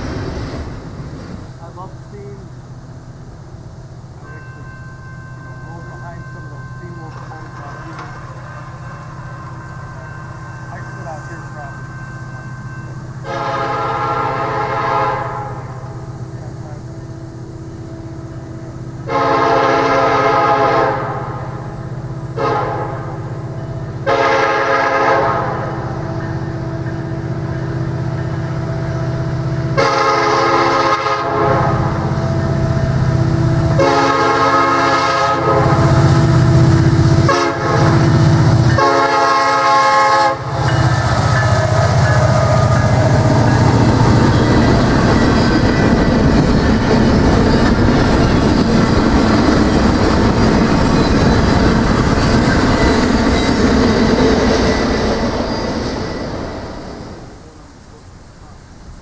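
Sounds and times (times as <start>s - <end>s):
locomotive engine rumble: 0.0s - 59.0s
train wheels clattering over rails: 6.9s - 10.3s, 40.4s - 57.2s
locomotive horn blasts: 13.2s - 16.0s, 19.0s - 21.6s, 22.3s - 23.3s, 24.0s - 25.9s, 29.7s - 32.4s, 33.7s - 46.0s.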